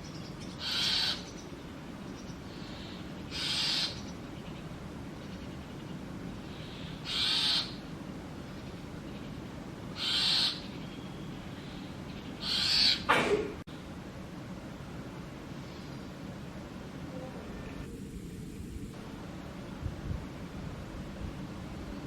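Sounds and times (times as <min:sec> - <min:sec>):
nestlings' raspy begging calls: 0:00.1 - 0:01.5, 0:02.2 - 0:04.6, 0:06.5 - 0:07.9, 0:09.1 - 0:13.1.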